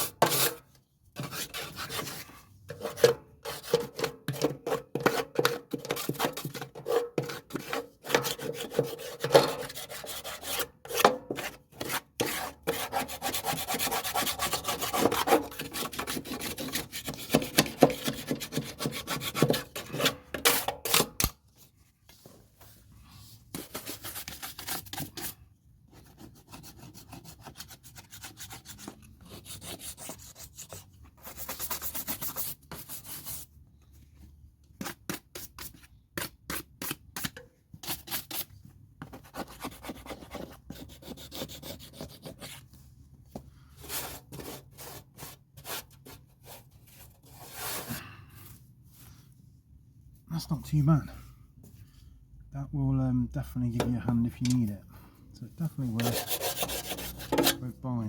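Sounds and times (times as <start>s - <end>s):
stiff brush scrubbing and scraping: 1.2s - 20.1s, 55.7s - 57.6s.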